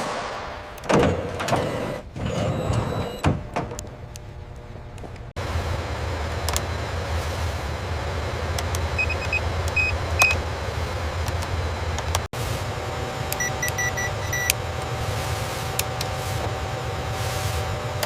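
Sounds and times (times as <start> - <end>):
machinery hum: 0.0 - 18.0
short electronic beeps: 13.4 - 14.5.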